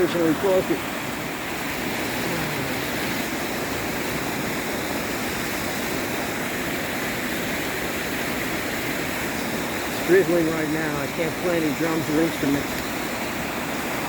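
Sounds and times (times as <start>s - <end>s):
creek water rushing: 0.0s - 14.0s.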